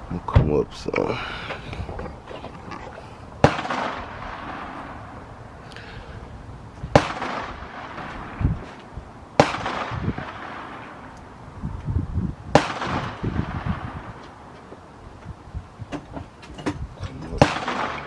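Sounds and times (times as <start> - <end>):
rifle shots echoing: 3.4 - 5.2, 6.9 - 8.4, 9.4 - 11.2, 12.5 - 14.1, 17.4 - 18.0.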